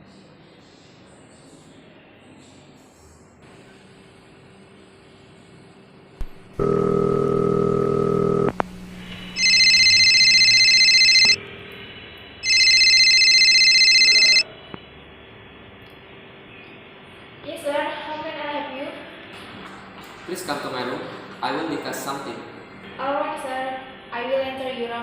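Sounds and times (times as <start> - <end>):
low buzzing tone: 6.2 - 11.8
electronic telephone ringing: 6.5 - 11.4, 12.4 - 14.4.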